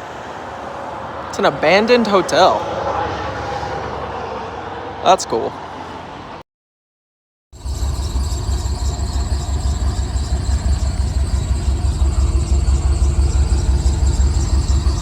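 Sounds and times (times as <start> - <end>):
drive belt squealing: 7.6 - 15.0
truck engine idling: 7.6 - 15.0.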